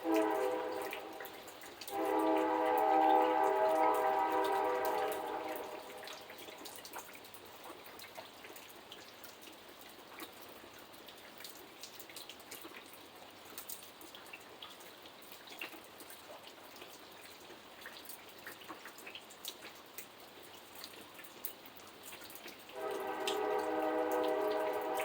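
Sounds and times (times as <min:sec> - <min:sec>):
loud horn blast: 0:00.0 - 0:06.4, 0:22.8 - 0:25.0
rain dripping and pattering: 0:00.0 - 0:25.0.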